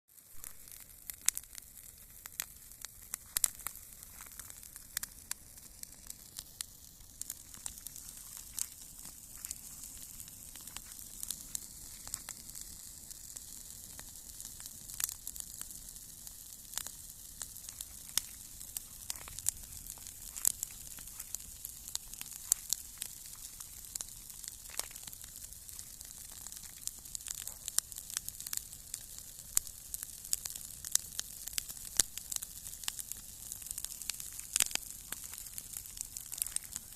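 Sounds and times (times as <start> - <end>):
campfire crackling and hissing: 0.1 - 36.9.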